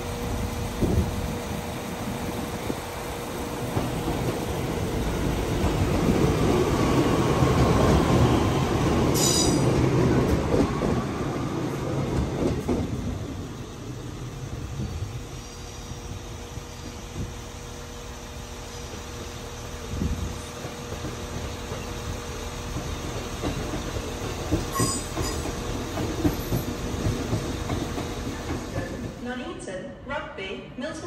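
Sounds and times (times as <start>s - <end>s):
train rumbling past: 0.0s - 29.6s.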